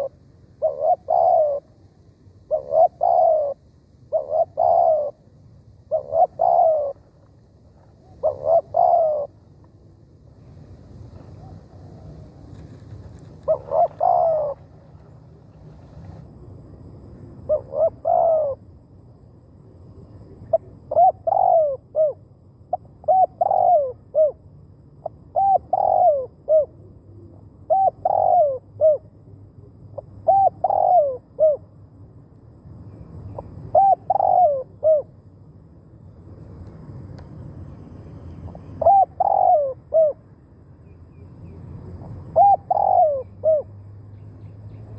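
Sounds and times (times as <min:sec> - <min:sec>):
dove cooing: 0:00.0 - 0:01.8, 0:02.4 - 0:05.3, 0:05.9 - 0:07.2, 0:08.0 - 0:09.6, 0:11.0 - 0:16.3, 0:17.4 - 0:18.6, 0:20.0 - 0:24.4, 0:25.0 - 0:31.7, 0:33.4 - 0:35.2, 0:38.5 - 0:40.2, 0:41.4 - 0:43.8.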